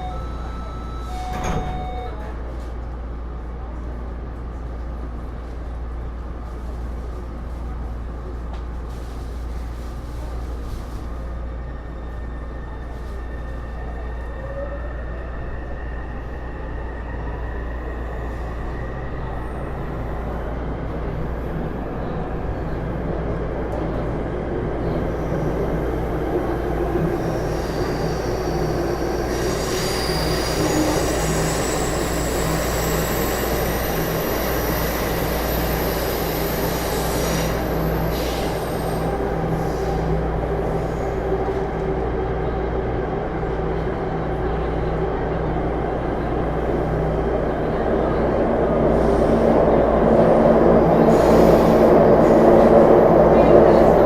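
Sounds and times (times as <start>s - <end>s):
train running noise: 15.4s - 54.0s.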